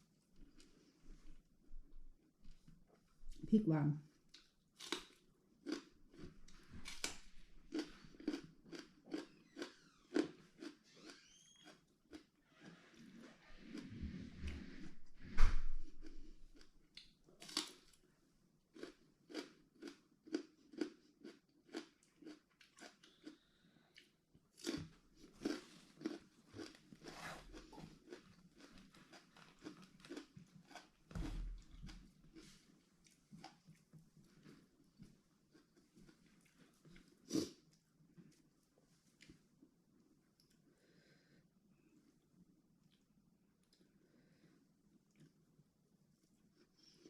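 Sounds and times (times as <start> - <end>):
person chewing crunchy vegetables: 4.3 - 12.4, 15.9 - 18.0, 18.7 - 38.5.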